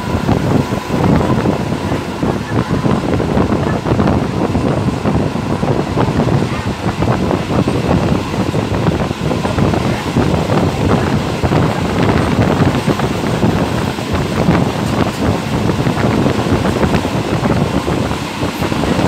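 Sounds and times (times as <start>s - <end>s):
train coach rumble and rattle: 0.0s - 19.0s
wind buffeting the microphone: 0.0s - 19.0s.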